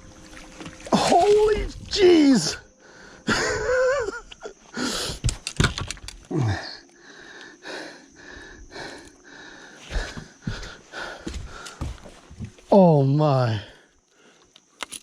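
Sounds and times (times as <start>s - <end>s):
person breathing heavily: 2.7s - 3.4s, 4.7s - 5.4s, 6.3s - 12.1s
sharp clicks: 5.0s - 7.6s.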